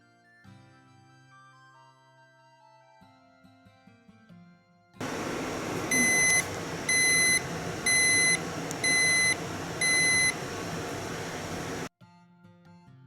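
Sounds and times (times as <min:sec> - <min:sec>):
appliance beeps: 0:05.0 - 0:11.9
steady hiss: 0:05.0 - 0:11.9.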